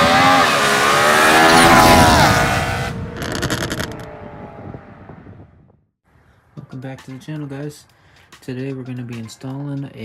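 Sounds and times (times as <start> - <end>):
car engine accelerating hard: 0.0 - 5.5.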